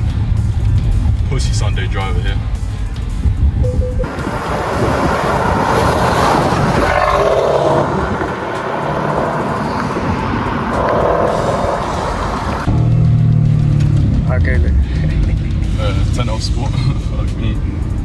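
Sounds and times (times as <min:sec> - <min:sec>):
car engine cruising: 0:03.7 - 0:17.2.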